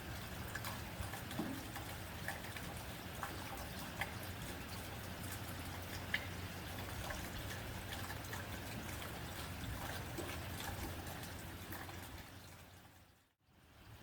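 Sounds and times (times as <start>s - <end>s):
rain on a tin roof: 0.0s - 14.0s.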